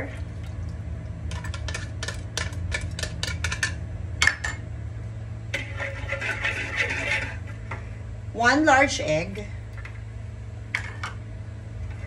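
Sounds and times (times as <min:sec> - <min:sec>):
utensils and bowls tapping: 0:01.3 - 0:04.6
rough scraping and rustling: 0:05.6 - 0:07.7.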